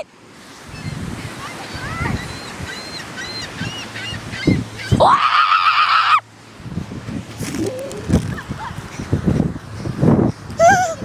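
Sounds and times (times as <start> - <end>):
birds chirping and squawking: 1.6 - 5.1.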